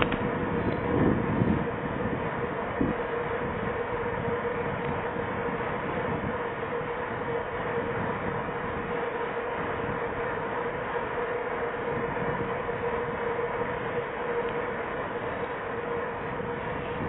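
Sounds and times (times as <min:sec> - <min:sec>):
bike tyres rolling: 0:00.0 - 0:17.0
constant hum: 0:00.0 - 0:17.0
wind noise: 0:00.0 - 0:17.0.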